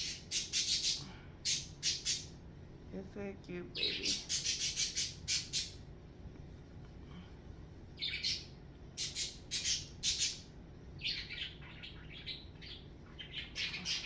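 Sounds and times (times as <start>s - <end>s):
bird chirps and squawks: 0.0s - 2.4s, 3.8s - 5.8s, 8.0s - 14.0s.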